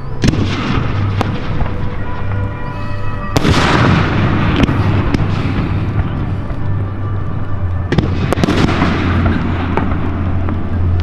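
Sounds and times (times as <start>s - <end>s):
firework bang: 0.2s - 1.8s, 3.3s - 6.3s
sharp firework cracks: 3.4s - 6.6s.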